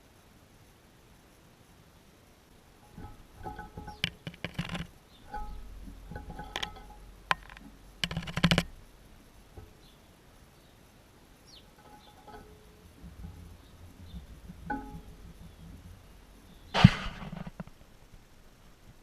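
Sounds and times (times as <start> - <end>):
rustling: 2.8 - 19.0
birds chirping: 2.9 - 17.6.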